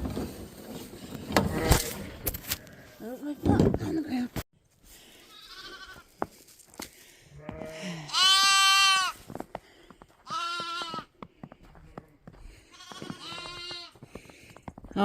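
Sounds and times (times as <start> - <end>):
lambs bleating: 5.2 - 6.0, 7.4 - 9.2, 10.2 - 11.1, 12.7 - 14.0.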